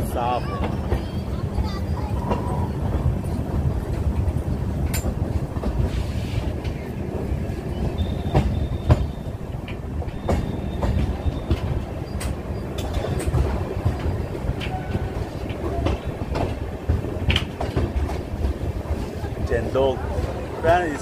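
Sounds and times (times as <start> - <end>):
train low rumble: 0.0 - 21.0
wheels clacking over rail joints: 0.0 - 21.0
high-pitched wheel squeals: 7.9 - 9.3.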